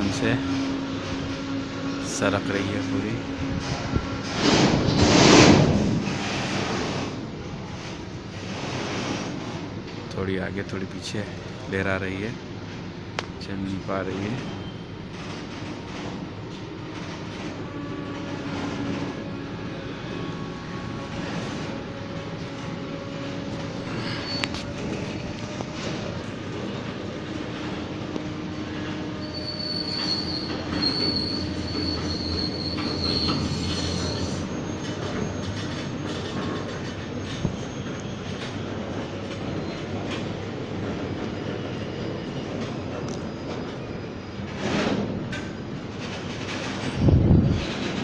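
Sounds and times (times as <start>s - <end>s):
freight train rolling: 0.0s - 48.0s
high wheel squeal: 14.4s - 14.9s, 23.0s - 26.2s, 28.6s - 38.5s, 41.3s - 44.6s.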